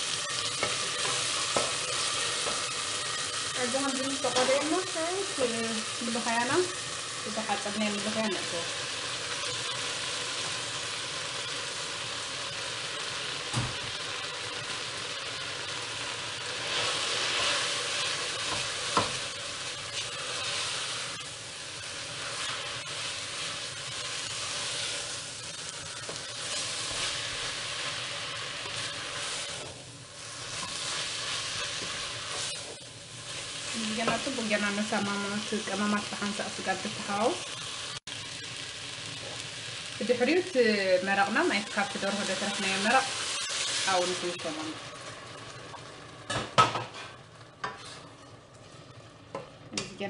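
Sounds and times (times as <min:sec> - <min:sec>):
food sizzling in hot oil: 0:00.0 - 0:50.0.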